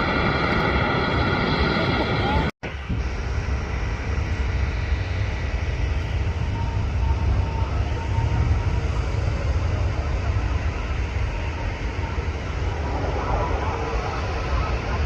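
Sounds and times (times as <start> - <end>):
jet engines rumbling: 0.0 - 15.0
thin high whine: 5.2 - 15.0.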